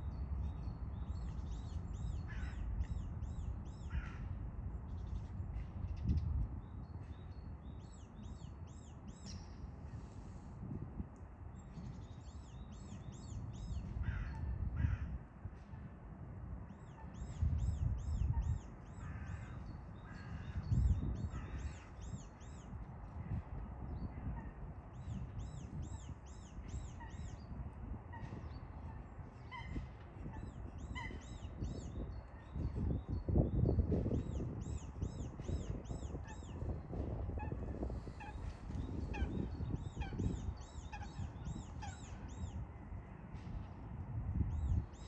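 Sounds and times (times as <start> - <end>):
bird calls: 28.1 - 33.3.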